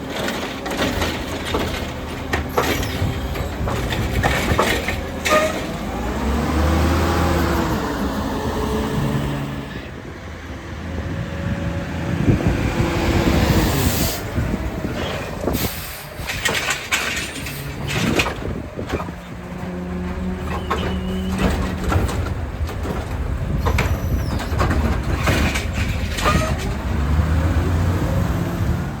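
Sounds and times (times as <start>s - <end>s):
truck engine revving: 0.0s - 29.0s
sharp metal clanks and knocks: 0.1s - 5.8s, 16.2s - 19.1s, 20.4s - 26.9s.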